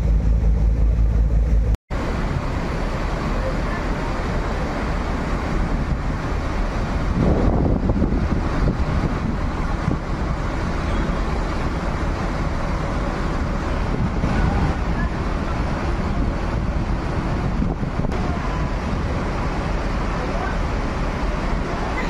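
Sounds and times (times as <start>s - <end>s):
low engine rumble: 0.0s - 22.0s
wind buffeting microphone: 4.3s - 21.7s.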